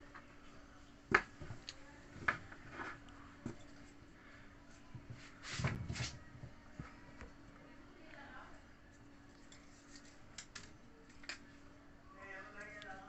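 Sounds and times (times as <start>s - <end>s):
rustling scrape: 5.2s - 6.3s.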